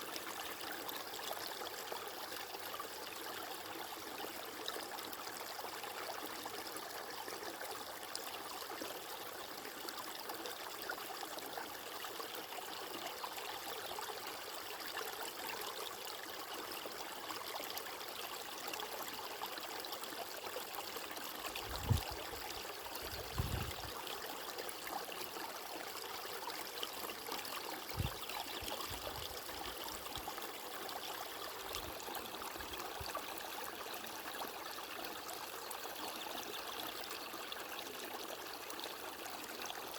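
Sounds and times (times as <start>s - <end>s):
water flowing: 21.4s - 24.8s, 26.6s - 33.9s.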